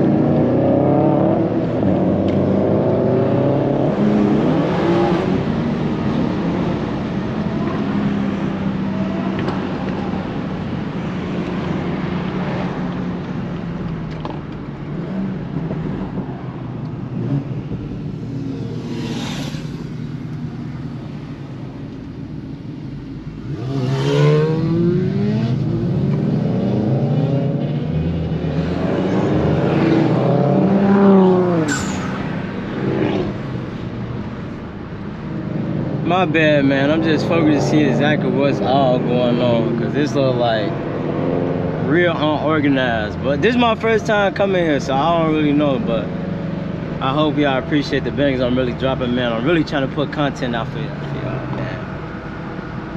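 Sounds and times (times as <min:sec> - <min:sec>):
road noise: 0:00.0 - 0:52.9
car engine accelerating: 0:16.8 - 0:33.6.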